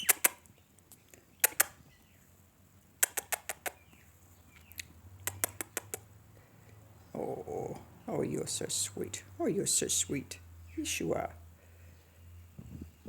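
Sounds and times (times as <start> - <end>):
budgerigar clicking: 0.0 - 2.1, 3.0 - 6.1
soft bird chirps: 0.0 - 2.4, 3.0 - 9.1.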